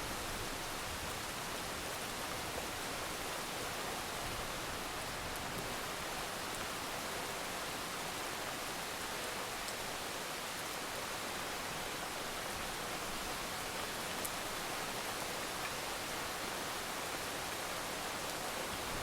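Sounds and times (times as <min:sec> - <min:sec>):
heavy rain falling: 0:11.4 - 0:19.0.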